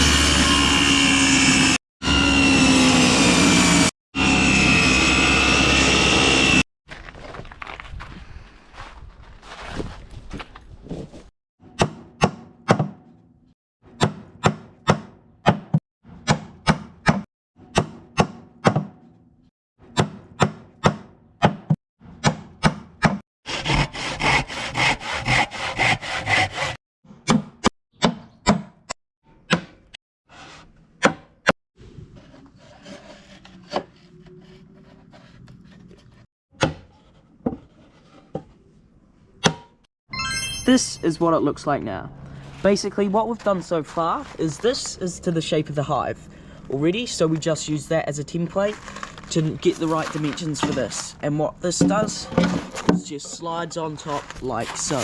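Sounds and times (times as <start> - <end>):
saw cutting timber: 0.0 - 6.6, 23.4 - 26.8, 32.4 - 35.0
wood handling and scraping: 31.9 - 38.8, 42.2 - 45.3, 48.5 - 55.0.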